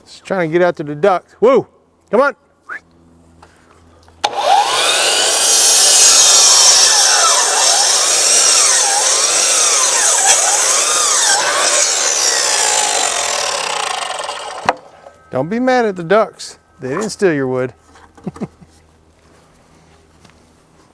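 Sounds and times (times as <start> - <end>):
saw cutting wooden board: 4.2 - 15.6.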